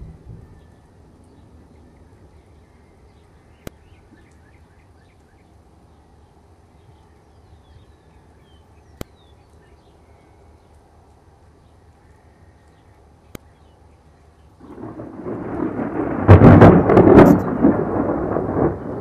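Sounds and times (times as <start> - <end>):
low storm rumble: 0.0 - 8.4, 14.5 - 19.0
birds chirping: 0.0 - 15.6.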